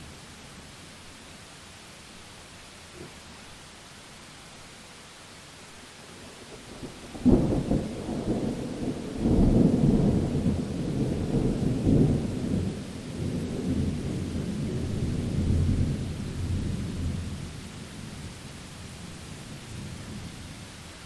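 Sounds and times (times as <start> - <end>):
rain hissing: 0.0 - 21.0
thunderclap rolling rumble: 6.8 - 17.5.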